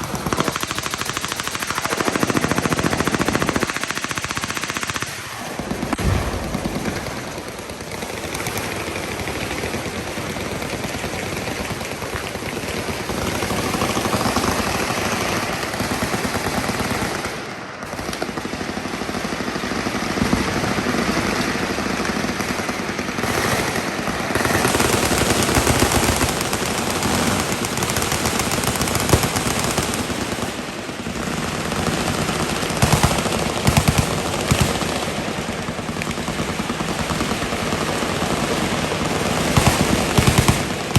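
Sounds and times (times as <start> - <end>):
machine-gun fire: 0.0 - 11.2, 22.3 - 40.9.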